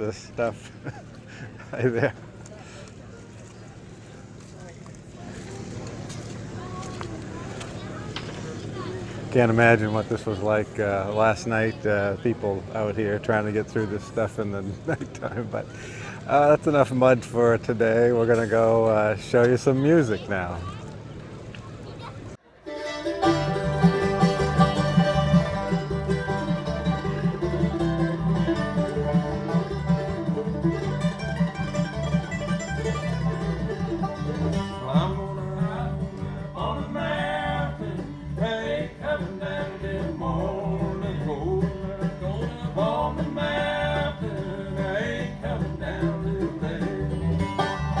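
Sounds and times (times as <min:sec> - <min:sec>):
bluegrass band playing: 0:05.1 - 0:20.8, 0:21.8 - 0:48.0
person singing: 0:34.8 - 0:47.4.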